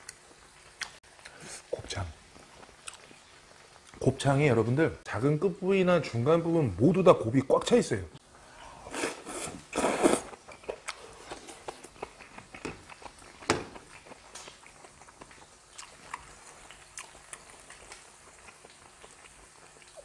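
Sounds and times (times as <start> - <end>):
person chewing: 2.3 - 4.0, 8.8 - 20.0
slurp from a bowl: 8.8 - 11.9.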